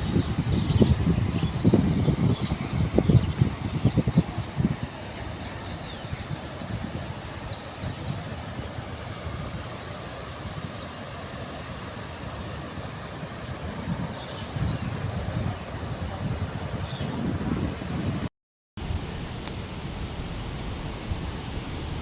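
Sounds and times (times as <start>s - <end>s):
low rushing outdoor noise: 18.8s - 22.0s.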